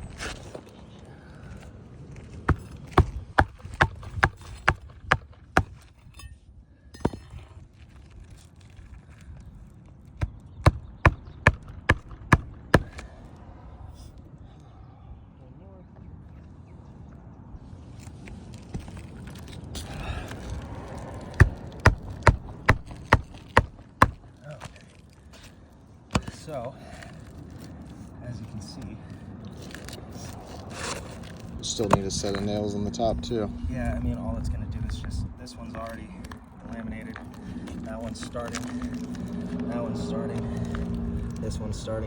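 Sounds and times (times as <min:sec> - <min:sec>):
roof shingles rustling and scraping: 0:00.0 - 0:06.1, 0:07.2 - 0:10.5, 0:17.8 - 0:32.7
hammer driving nails into shingles: 0:02.5 - 0:05.9, 0:10.2 - 0:13.1, 0:21.3 - 0:24.3, 0:26.1 - 0:26.4.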